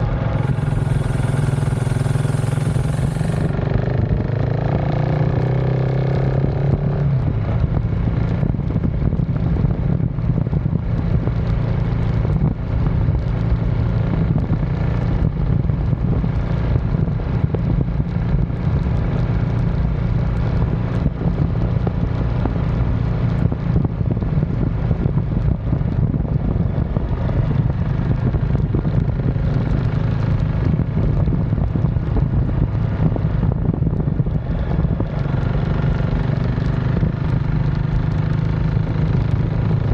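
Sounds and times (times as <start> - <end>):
motorcycle engine cruising: 0.0 - 39.9
wind noise on microphone: 0.0 - 39.9.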